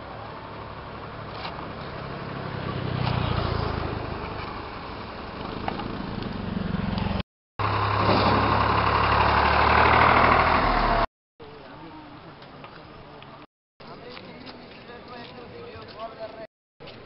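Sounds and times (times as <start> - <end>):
machinery engine humming: 4.7 - 11.0.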